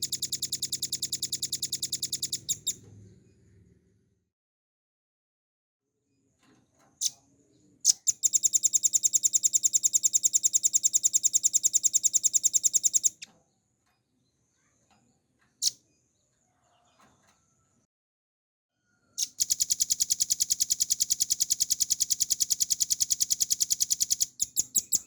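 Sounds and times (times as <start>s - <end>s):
bird calling with rapid trill: 0.0s - 2.8s, 7.9s - 13.3s, 19.2s - 25.0s.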